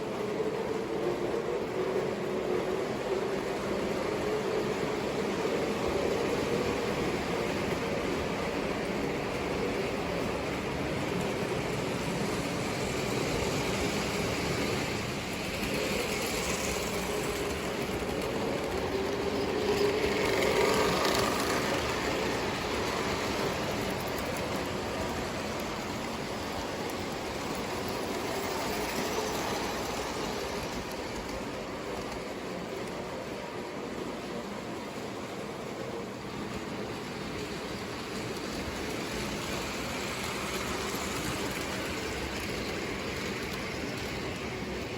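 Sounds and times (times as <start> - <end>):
wheels rumbling on rails: 0.0 - 44.9
toy train motor hum: 12.2 - 26.3.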